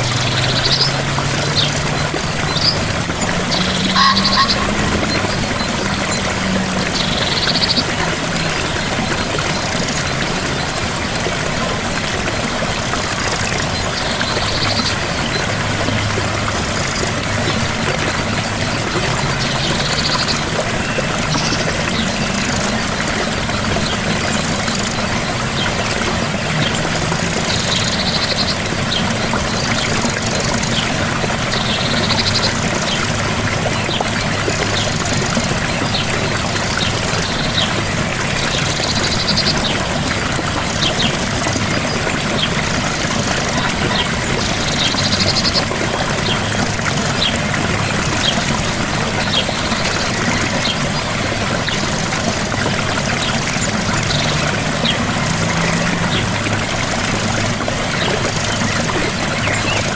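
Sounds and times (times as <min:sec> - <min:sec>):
waterfall rushing: 0:00.0 - 0:59.9
short high chirping call: 0:03.6 - 0:04.8.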